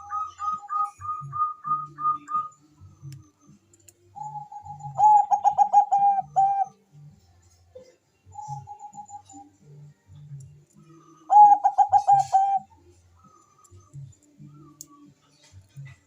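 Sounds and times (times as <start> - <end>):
dove cooing: 0.0 - 2.5, 4.2 - 6.8, 8.3 - 9.6, 10.9 - 14.8.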